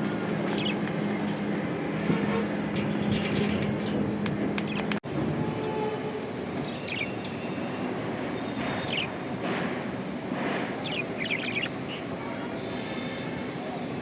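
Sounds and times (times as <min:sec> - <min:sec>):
budgerigars chirping: 0:08.8 - 0:09.1, 0:10.8 - 0:12.0.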